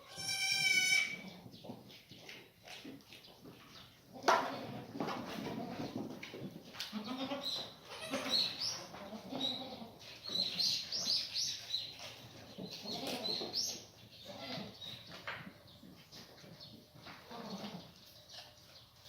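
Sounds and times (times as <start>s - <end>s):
goats bleating: 0.0s - 1.3s, 6.8s - 10.0s.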